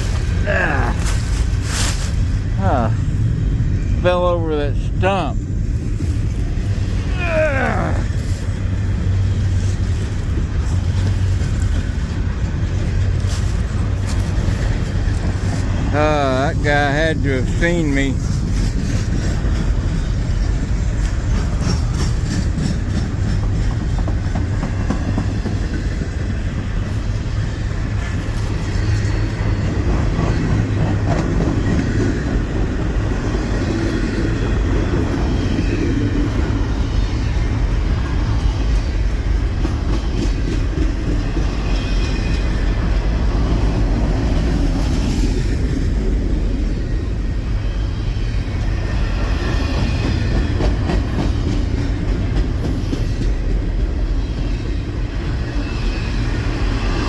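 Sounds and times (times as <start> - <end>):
freight train rumbling past: 0.0 - 57.0
wheels clacking over rail joints: 18.2 - 46.6, 48.2 - 57.0.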